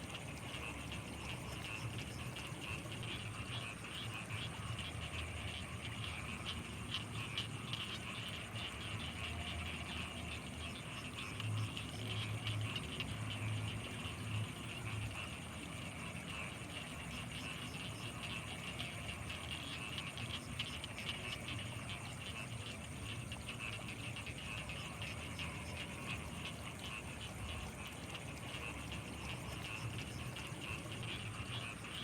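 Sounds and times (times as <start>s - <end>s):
frogs and insects trilling: 0.0s - 32.0s.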